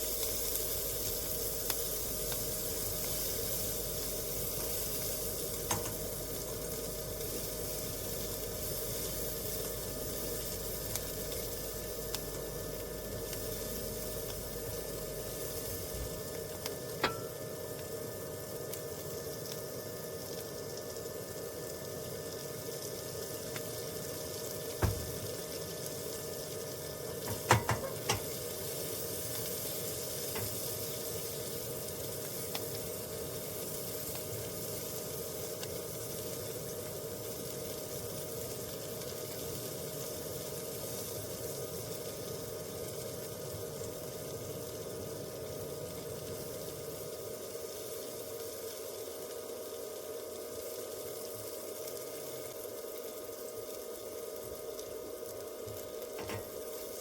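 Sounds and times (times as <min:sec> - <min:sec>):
sizzling hiss: 0:00.0 - 0:57.0
faint steady tone: 0:10.1 - 0:22.6.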